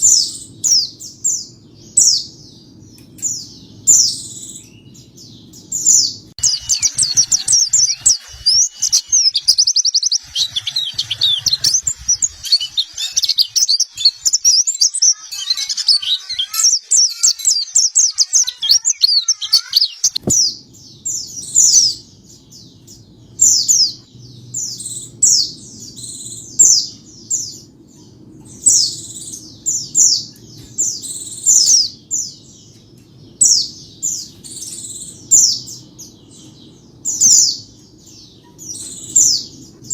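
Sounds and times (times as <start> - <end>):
bird twittering chirps and trills: 0.0 - 39.9.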